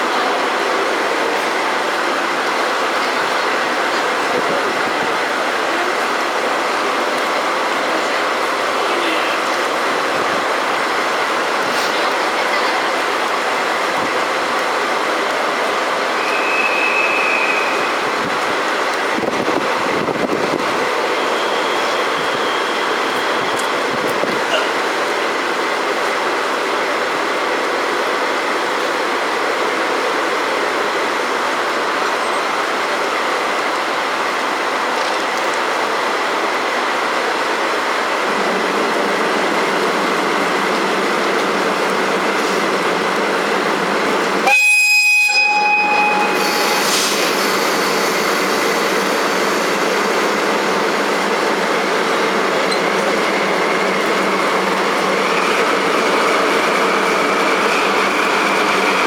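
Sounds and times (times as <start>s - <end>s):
train rail and wheel noise: 0.0s - 59.0s
train horn blast: 44.4s - 47.1s.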